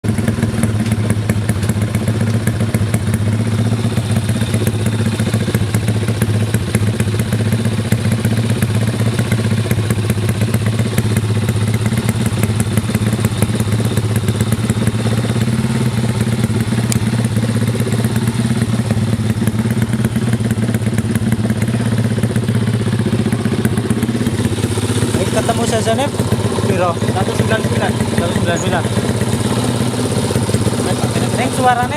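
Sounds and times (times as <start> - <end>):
motorcycle engine idling: 0.0 - 31.9.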